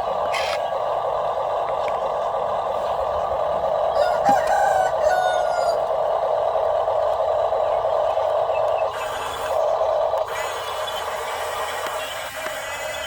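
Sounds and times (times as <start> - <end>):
steady mechanical whir: 0.0 - 13.0
rooster crowing: 3.9 - 5.8.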